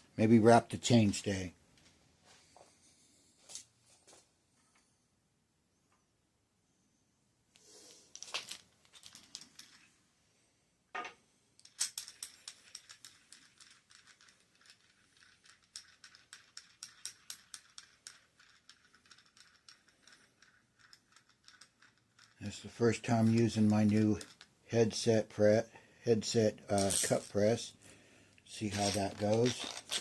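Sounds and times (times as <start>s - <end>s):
rustle of handled parts: 7.6s - 10.0s, 11.0s - 25.1s, 26.3s - 30.0s.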